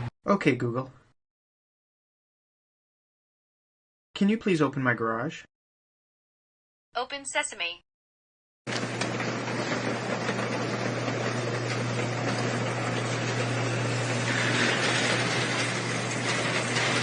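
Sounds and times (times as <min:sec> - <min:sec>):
garage door rumbling: 0:08.7 - 0:17.0
motor hum: 0:08.7 - 0:17.0.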